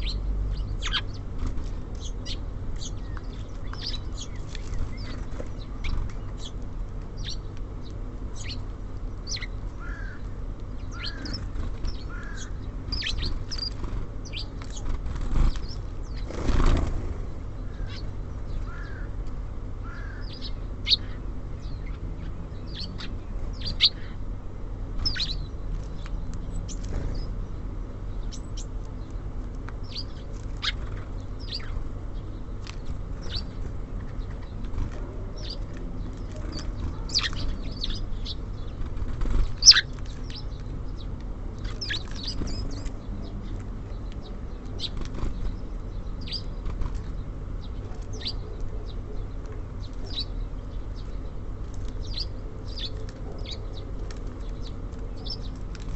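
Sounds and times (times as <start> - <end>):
songbirds chirping: 0.0 - 55.9
bird wings fluttering: 13.4 - 17.3.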